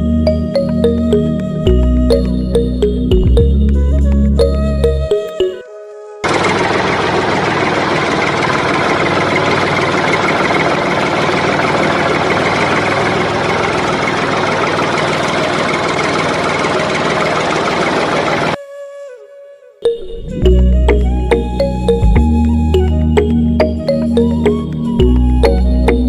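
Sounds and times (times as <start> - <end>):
engine idling: 6.2 - 18.6.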